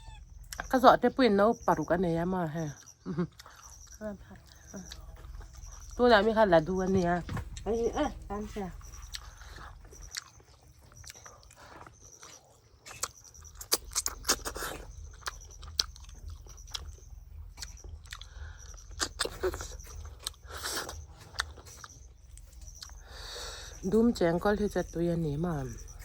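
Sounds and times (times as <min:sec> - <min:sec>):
person chewing snails: 0:02.8 - 0:06.0, 0:08.8 - 0:23.9.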